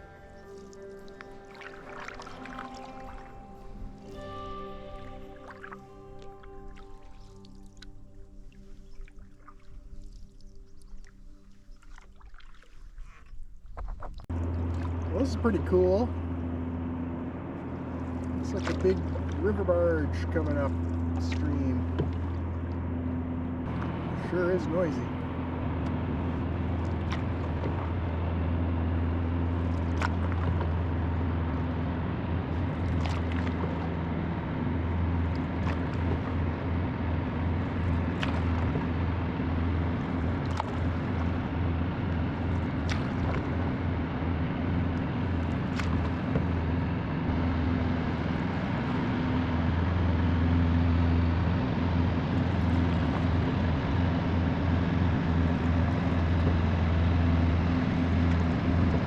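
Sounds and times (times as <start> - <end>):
jet engine low drone: 14.3 - 59.0.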